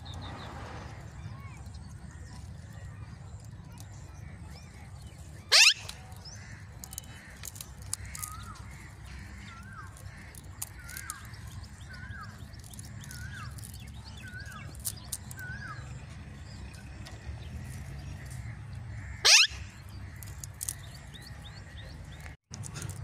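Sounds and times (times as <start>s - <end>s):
bird shrieking: 5.5s - 6.0s, 19.1s - 19.8s.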